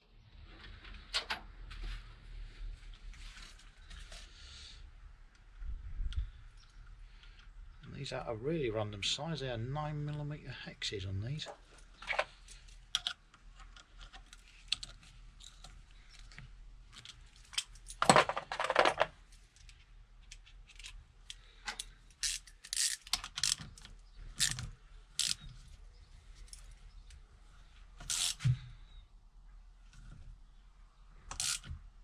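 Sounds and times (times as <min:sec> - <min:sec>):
metal parts clicking and clinking: 0:20.3 - 0:25.5, 0:28.0 - 0:28.4, 0:31.3 - 0:31.7.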